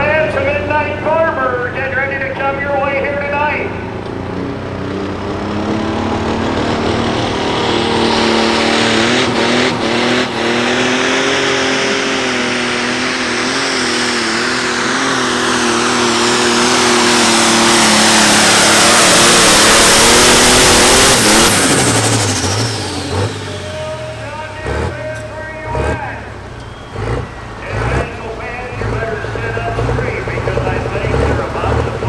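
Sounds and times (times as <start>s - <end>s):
tractor engine at high revs: 0.0s - 32.0s.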